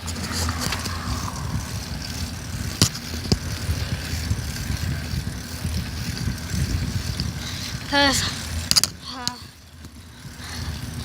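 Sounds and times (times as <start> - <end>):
wind and riding noise rumble: 0.0 - 11.0.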